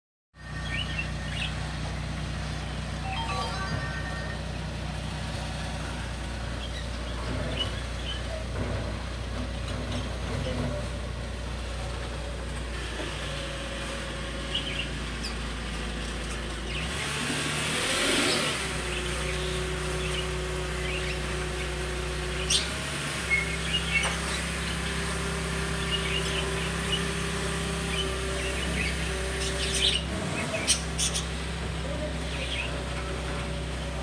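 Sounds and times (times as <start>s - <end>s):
lovebirds chirping: 0.4s - 8.5s, 14.4s - 15.6s, 18.8s - 33.0s
steady mechanical hum: 0.4s - 34.0s.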